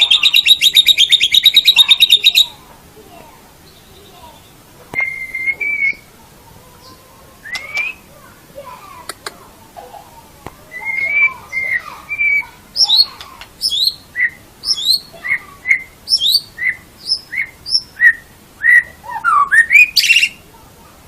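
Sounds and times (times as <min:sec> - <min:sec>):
bird singing whistled notes: 0:00.0 - 0:02.6, 0:03.7 - 0:06.1, 0:07.4 - 0:08.1, 0:10.7 - 0:20.4.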